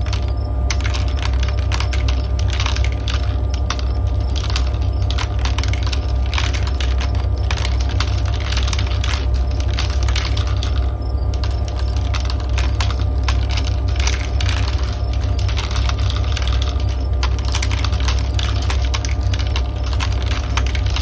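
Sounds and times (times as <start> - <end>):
faint cricket chirring: 0.0 - 21.0
low white-noise hum: 0.0 - 21.0
marbles clattering on plastic track: 0.0 - 21.0.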